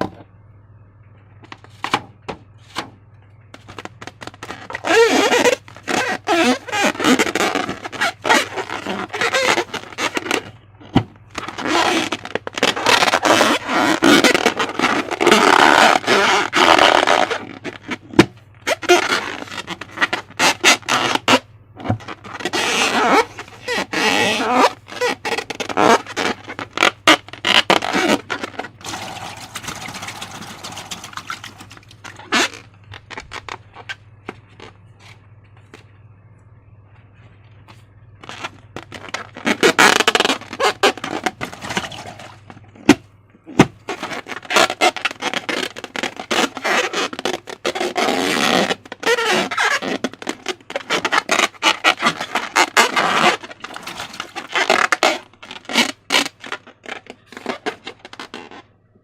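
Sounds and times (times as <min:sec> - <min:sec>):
slime squelching and crackling: 0:22.0 - 0:34.0, 0:43.5 - 0:58.6.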